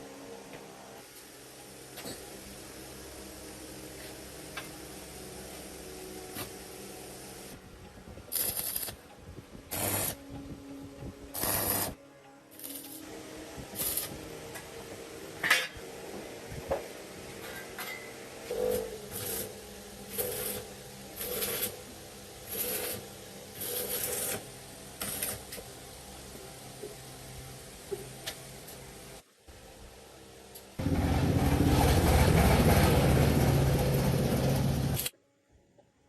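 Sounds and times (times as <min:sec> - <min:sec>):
mechanical clatter and scraping: 0:30.8 - 0:35.1.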